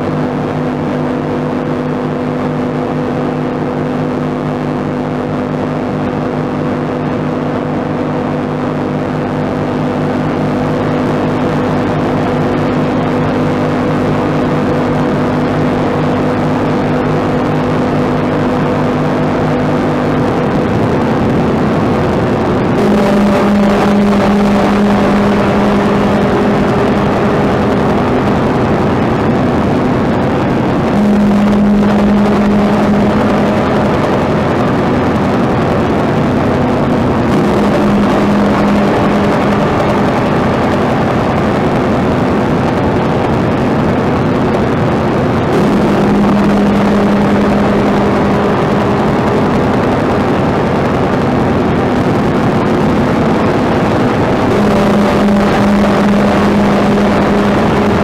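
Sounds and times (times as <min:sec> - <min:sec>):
dense noise wash: 0:00.0 - 0:58.0
low droning tones: 0:00.0 - 0:58.0.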